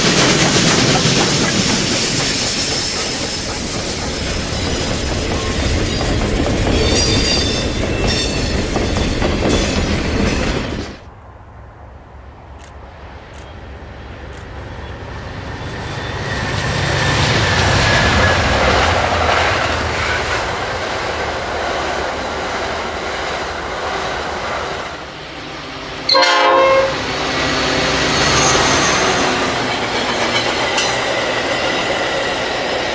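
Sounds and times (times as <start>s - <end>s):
train rumble and wheel noise: 0.0s - 32.9s
train horn blast: 25.2s - 29.6s.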